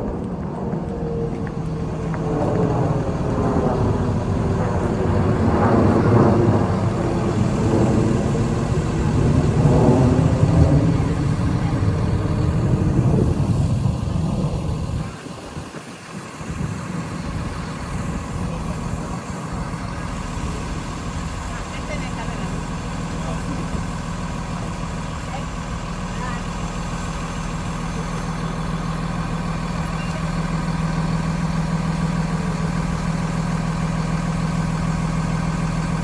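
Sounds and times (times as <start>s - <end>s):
vehicle engine accelerating: 0.0s - 15.6s.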